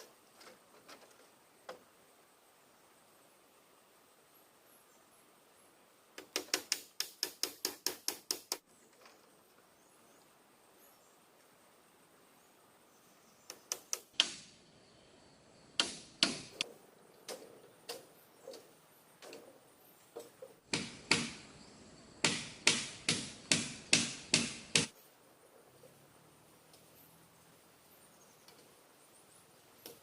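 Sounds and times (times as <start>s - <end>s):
chopping blows on wood: 15.8s - 16.6s, 20.7s - 21.4s, 22.2s - 24.9s.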